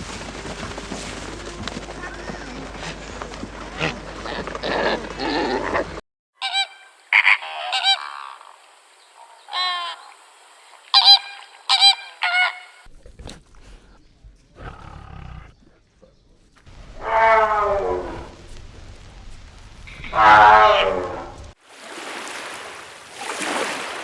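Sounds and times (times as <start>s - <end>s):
geese honking: 2.0s - 10.2s, 10.8s - 12.9s.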